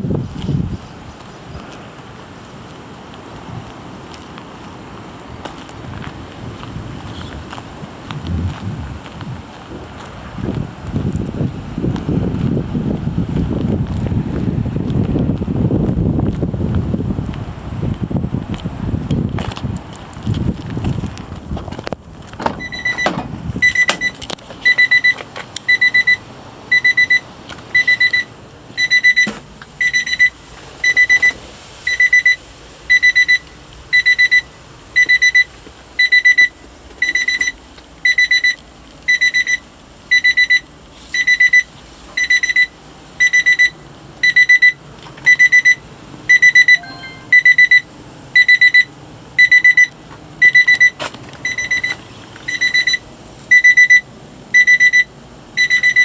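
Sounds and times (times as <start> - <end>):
high-pitched warning beeps: 22.6 - 56.0.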